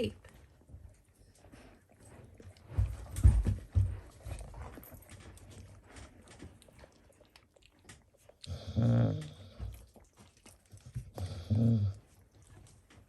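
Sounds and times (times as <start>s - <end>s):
soft rustling: 0.0s - 8.4s.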